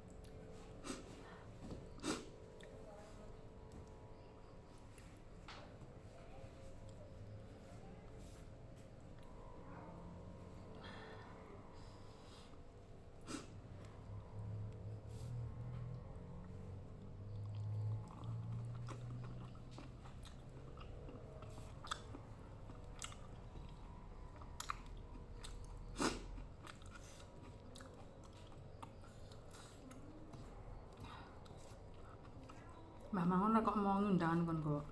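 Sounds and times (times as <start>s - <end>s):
chewing and biting food: 15.9s - 33.1s.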